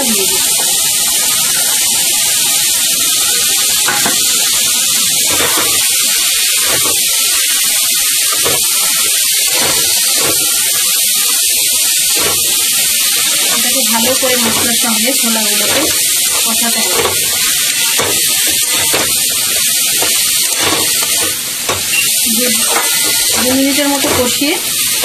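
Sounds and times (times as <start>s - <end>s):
chickpeas sizzling in a pan: 0.0s - 25.0s
spatula scraping and stirring: 6.5s - 7.2s, 8.3s - 10.9s, 11.9s - 24.5s.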